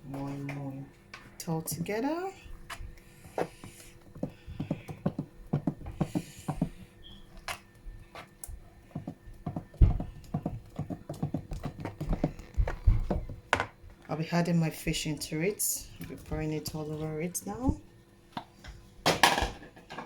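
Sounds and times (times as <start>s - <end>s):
spoon mixing thick paste: 1.5s - 13.4s.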